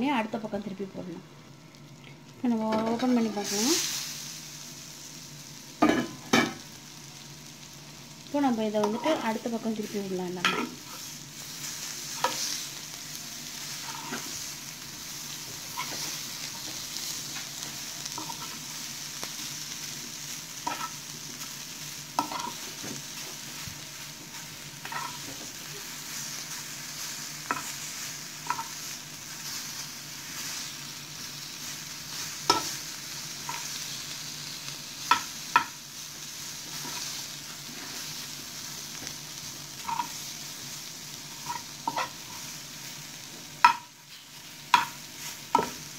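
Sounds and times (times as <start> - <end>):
vegetable slices sizzling in oil: 0.0 - 45.9
spatula tapping pan: 35.0 - 35.8, 43.6 - 43.9, 44.7 - 45.8.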